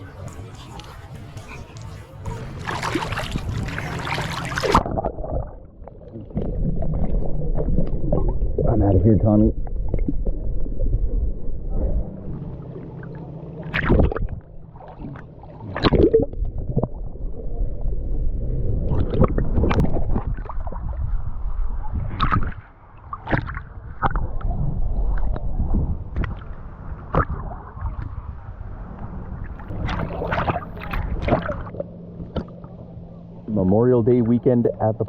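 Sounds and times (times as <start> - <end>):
water splashing around paddled canoe: 0.0 - 8.4, 12.6 - 17.0, 21.9 - 33.6
steady low rumble: 0.0 - 35.0.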